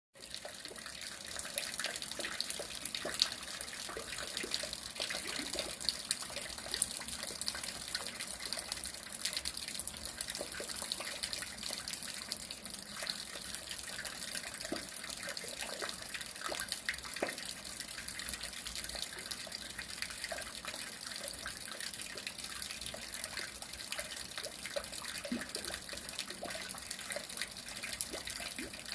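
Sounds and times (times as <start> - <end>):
rain falling: 0.2 - 21.4
close water drips: 0.2 - 28.9.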